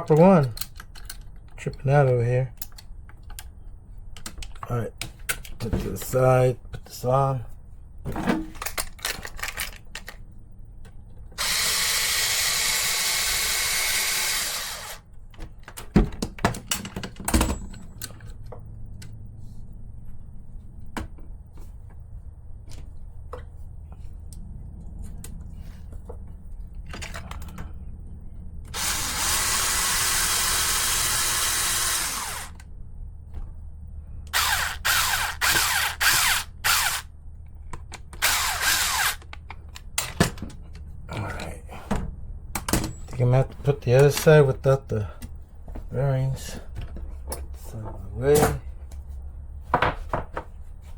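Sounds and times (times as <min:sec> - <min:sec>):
small parts clicking: 0:00.4 - 0:01.8
electric screwdriver driving screws: 0:11.4 - 0:15.0, 0:28.7 - 0:32.6, 0:34.3 - 0:37.1, 0:38.2 - 0:39.3.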